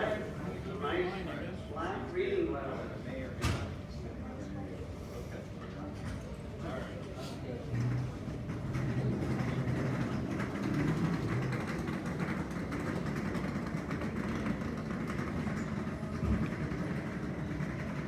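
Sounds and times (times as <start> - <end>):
fine rapid rattle: 8.8 - 18.0.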